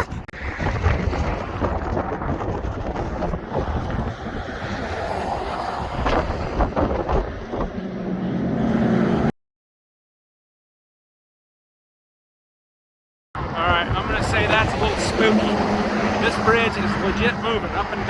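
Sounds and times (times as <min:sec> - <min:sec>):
highway traffic passing: 0:00.0 - 0:09.3, 0:13.4 - 0:18.0
wind buffeting microphone: 0:00.0 - 0:09.3, 0:13.4 - 0:18.0
low engine hum: 0:00.5 - 0:09.3.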